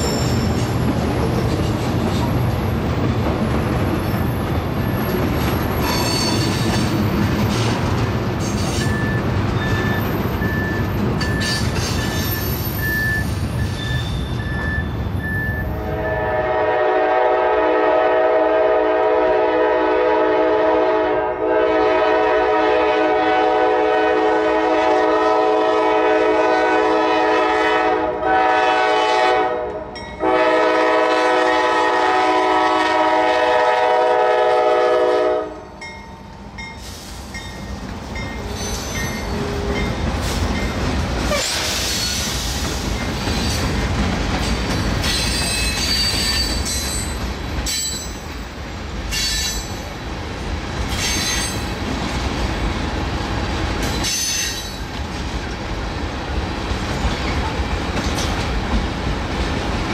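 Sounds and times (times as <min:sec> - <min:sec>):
freight train wheels rumbling: 0:00.0 - 0:59.9
locomotive horn: 0:15.7 - 0:35.7
wheels clicking over rail joints: 0:56.7 - 0:59.9.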